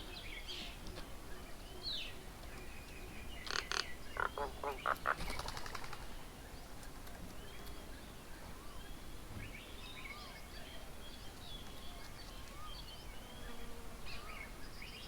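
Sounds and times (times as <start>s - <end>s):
outdoor background hiss: 0.0s - 15.0s
high chattering bird calls: 2.8s - 6.2s.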